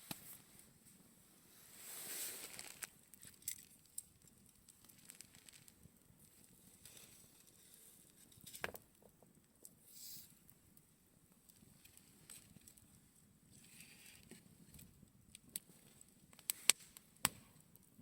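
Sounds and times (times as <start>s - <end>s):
soft rush of flame: 1.4s - 3.0s
campfire crackling and popping: 2.4s - 7.0s, 8.6s - 18.0s.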